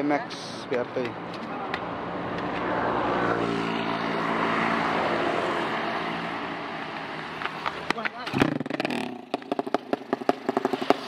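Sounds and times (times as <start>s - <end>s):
motorcycle engine at high revs: 8.3s - 11.0s.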